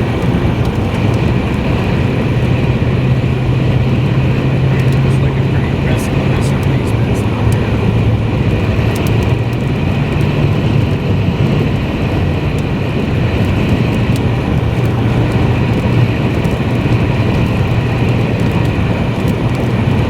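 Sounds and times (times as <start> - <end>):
road and engine noise in cabin: 0.0 - 20.0.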